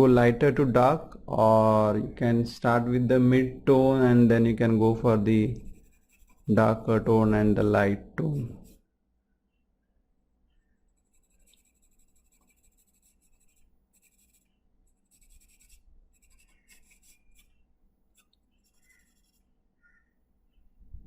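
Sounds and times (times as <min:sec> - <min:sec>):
pencil shading on paper: 0:05.5 - 0:07.4, 0:08.2 - 0:08.8, 0:10.9 - 0:17.6, 0:18.2 - 0:19.5.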